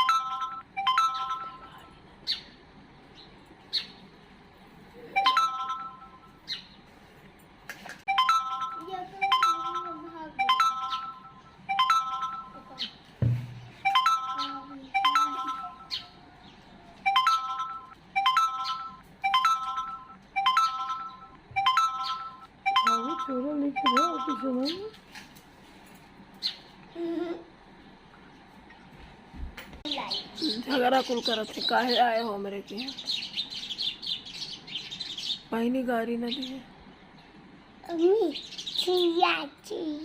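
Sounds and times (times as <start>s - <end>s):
electronic ringtone melody: 0.0s - 1.9s, 5.1s - 6.5s, 8.1s - 12.9s, 13.7s - 16.2s, 17.0s - 24.9s
sparrow chirping: 0.0s - 4.2s, 5.2s - 6.8s, 9.6s - 17.6s, 18.3s - 19.6s, 20.6s - 24.9s, 29.9s - 37.3s, 38.0s - 39.2s.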